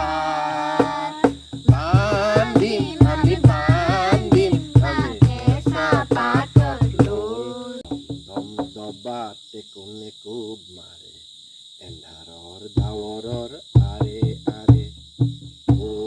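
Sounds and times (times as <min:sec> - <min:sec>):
drum beats: 0:00.0 - 0:07.3, 0:07.9 - 0:08.8, 0:12.8 - 0:13.2, 0:13.8 - 0:16.0
song with melodic singing: 0:00.0 - 0:07.9
crickets trilling: 0:00.0 - 0:16.0.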